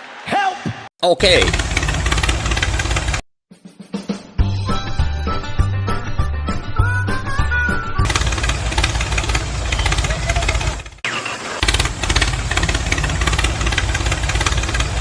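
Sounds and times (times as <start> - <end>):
small motor rattling: 1.3 - 3.2, 8.0 - 15.0.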